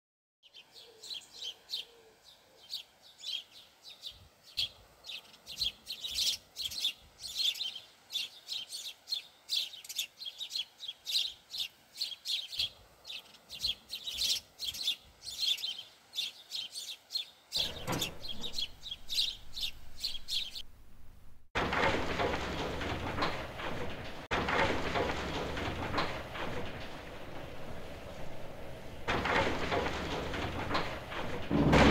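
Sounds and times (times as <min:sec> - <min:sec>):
small birds chirping: 0:00.4 - 0:20.7.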